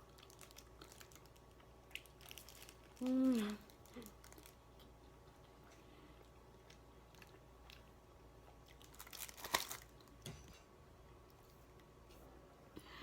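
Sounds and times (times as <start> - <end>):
person chewing noodles: 3.7 - 9.6.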